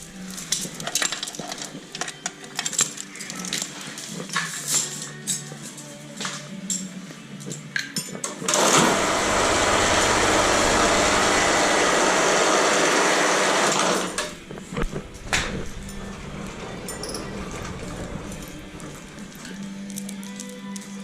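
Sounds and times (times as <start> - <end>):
power tool running: 8.5 - 14.5
metal hand tools clinking: 15.1 - 20.4.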